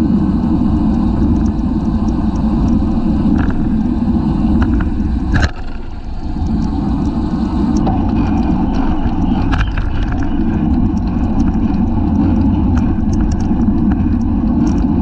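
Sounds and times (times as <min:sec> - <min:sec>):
wind buffeting microphone: 0:00.0 - 0:15.0
faint ticks: 0:00.7 - 0:03.7, 0:04.5 - 0:15.0.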